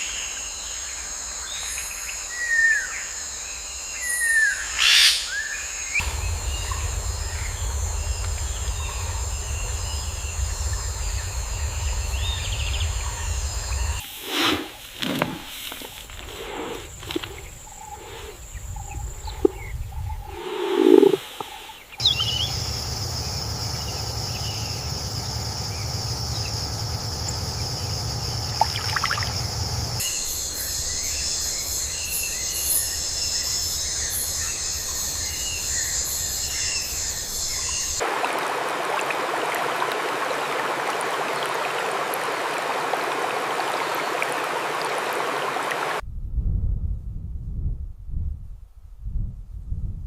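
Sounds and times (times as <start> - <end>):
insect chorus: 0.0 - 46.0
high insect buzz: 5.6 - 19.6, 20.3 - 38.0
low rumble: 6.0 - 14.1, 16.8 - 21.4, 22.0 - 38.0, 46.0 - 50.0
chirps: 18.6 - 38.0
running water: 20.6 - 33.0, 33.9 - 46.0.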